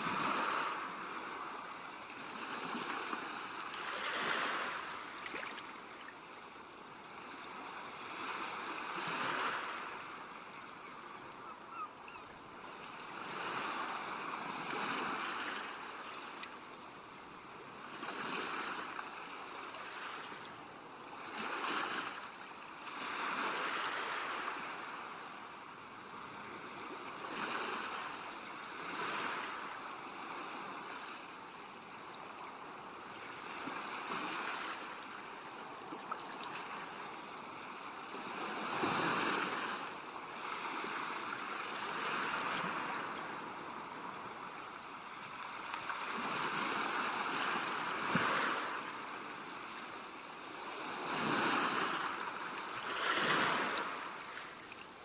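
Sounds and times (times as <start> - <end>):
sea waves washing onto shore: 33.2 - 55.0.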